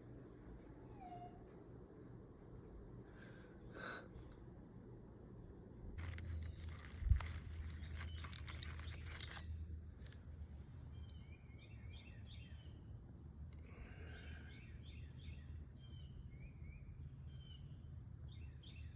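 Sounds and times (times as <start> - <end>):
low steady rumble: 0.0 - 18.9
rustling: 6.0 - 9.5.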